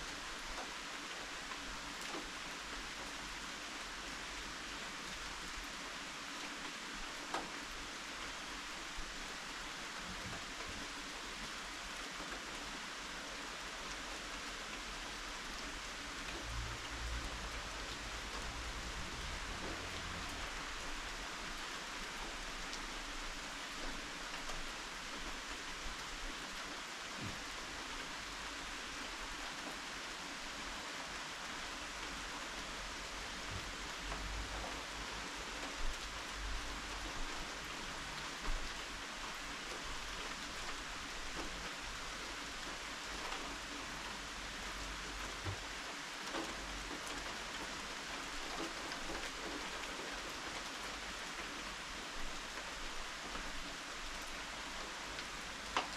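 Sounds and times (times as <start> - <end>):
steady rain falling: 0.0 - 55.9
faint raindrop ticks: 0.1 - 55.9.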